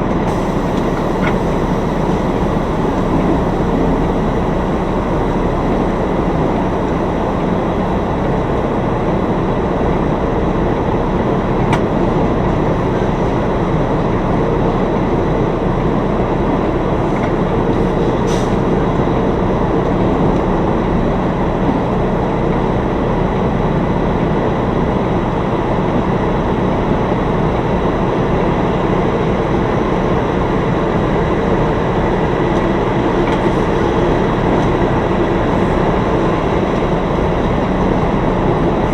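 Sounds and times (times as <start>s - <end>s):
truck diesel engine droning: 0.0s - 38.9s.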